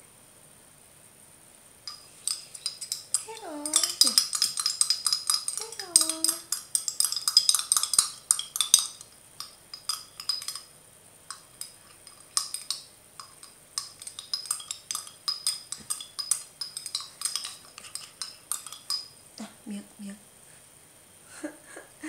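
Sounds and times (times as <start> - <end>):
spoon scraping plastic container: 15.8 - 18.9.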